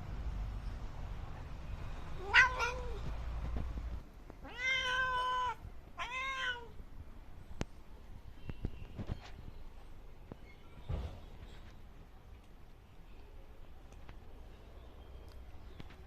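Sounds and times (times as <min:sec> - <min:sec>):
cat meowing: 0:02.2 - 0:03.1, 0:04.4 - 0:06.8.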